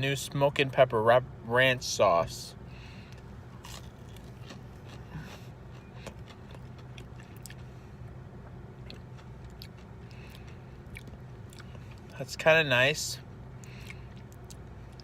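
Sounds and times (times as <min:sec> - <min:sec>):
man chewing crispy food: 0:02.7 - 0:12.2, 0:13.4 - 0:15.0.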